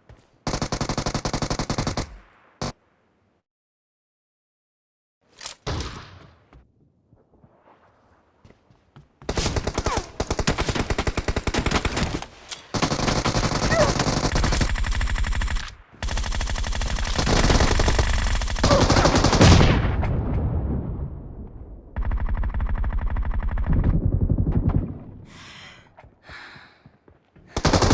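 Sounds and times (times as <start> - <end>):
video game automatic gunfire: 0.4 - 2.7, 9.3 - 19.8, 22.0 - 24.7, 27.6 - 27.9.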